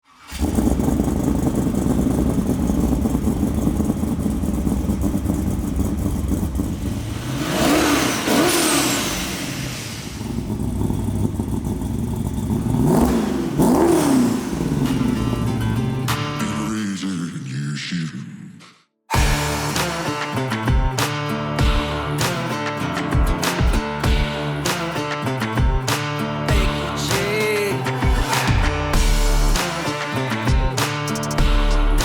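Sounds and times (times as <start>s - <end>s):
car engine idling and revving: 0.1s - 16.7s, 19.2s - 32.0s
music: 15.2s - 16.6s, 19.1s - 32.0s.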